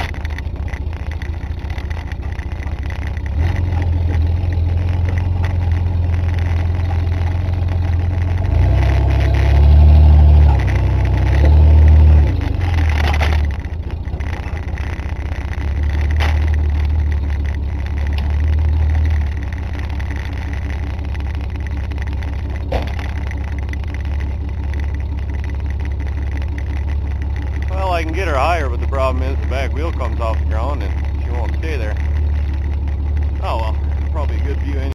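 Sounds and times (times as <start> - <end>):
pickup engine revving under load: 0.0 - 34.9.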